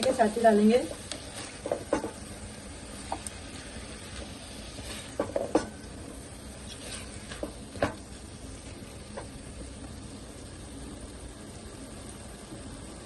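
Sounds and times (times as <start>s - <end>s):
steady low hiss: 0.0s - 13.0s
spoon scraping and knocking a pan: 1.2s - 2.3s, 4.0s - 5.8s.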